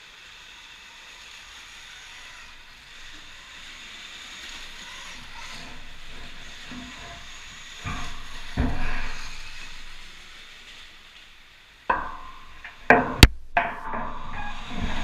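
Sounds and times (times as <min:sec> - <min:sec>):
irregular thumps and knocks: 0:05.4 - 0:10.0, 0:11.9 - 0:15.0.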